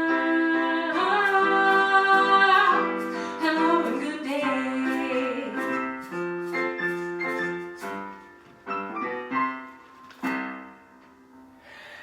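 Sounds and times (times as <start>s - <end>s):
piano playing: 0.0s - 12.0s.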